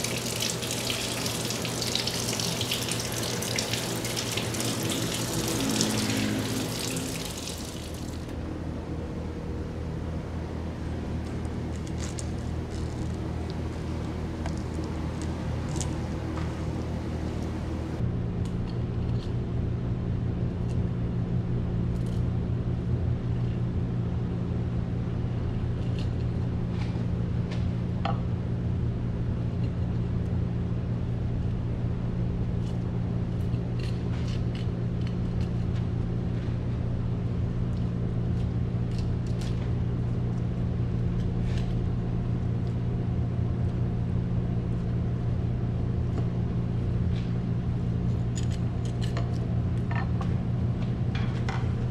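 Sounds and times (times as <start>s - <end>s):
kitchen machinery hum: 0.0s - 51.9s.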